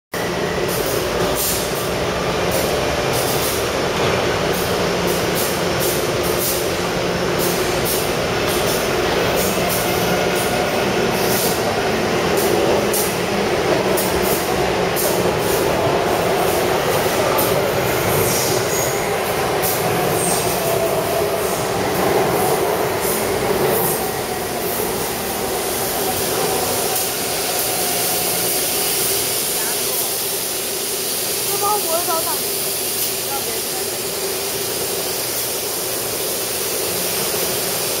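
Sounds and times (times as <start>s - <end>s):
train running on track: 0.1s - 38.0s.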